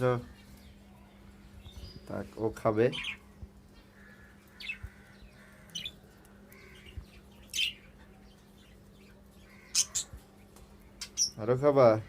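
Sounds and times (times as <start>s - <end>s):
parrots chirping: 2.9s - 11.5s.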